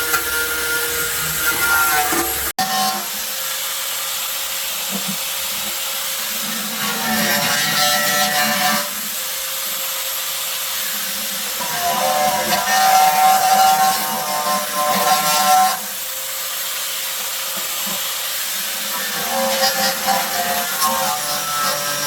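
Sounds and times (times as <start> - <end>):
handheld power tool running: 0.0 - 22.0.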